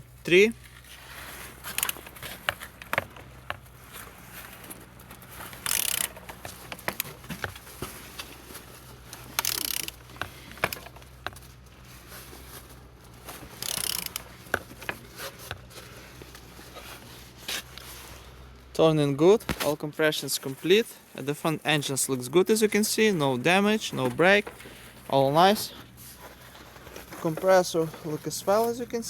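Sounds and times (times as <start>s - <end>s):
metallic ratchet clicks: 1.7s - 2.0s, 5.6s - 6.2s, 9.3s - 10.9s, 13.6s - 14.3s.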